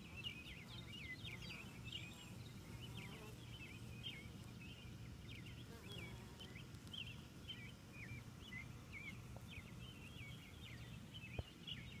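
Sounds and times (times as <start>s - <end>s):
honeybees humming: 0.0s - 12.0s
small birds chirping: 0.0s - 12.0s.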